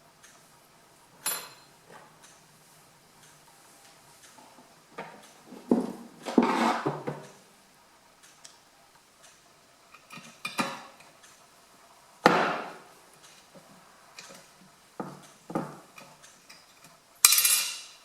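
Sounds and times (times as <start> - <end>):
metallic knocks and clinks: 1.2 - 1.7.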